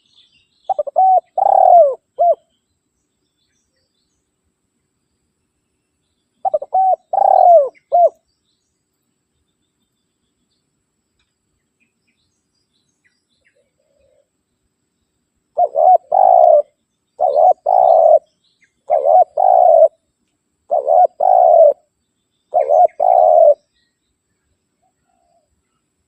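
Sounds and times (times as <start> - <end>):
dove cooing: 0.7 - 2.4, 6.4 - 8.2, 15.6 - 20.0, 20.7 - 21.9, 22.5 - 23.7.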